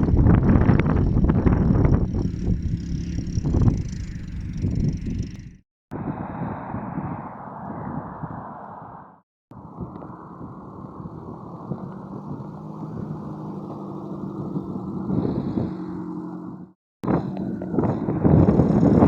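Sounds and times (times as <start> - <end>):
car engine droning under load: 0.0 - 5.6, 9.5 - 19.0.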